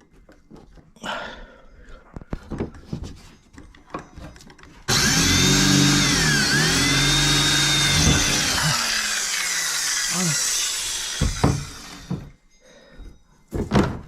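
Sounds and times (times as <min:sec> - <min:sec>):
power drill running: 0:04.9 - 0:12.4.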